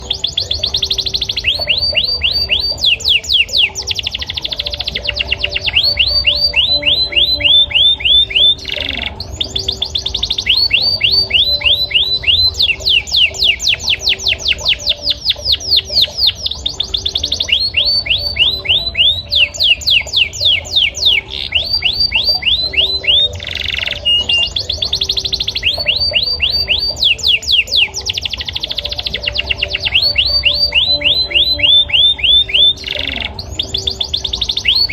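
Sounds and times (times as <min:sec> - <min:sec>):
canary singing trills: 0:00.0 - 0:34.9.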